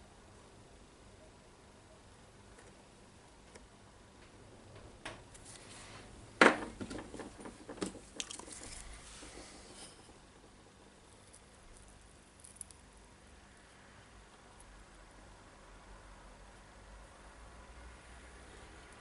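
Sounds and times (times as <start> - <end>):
tools tapping and rattling: 6.4 - 8.8.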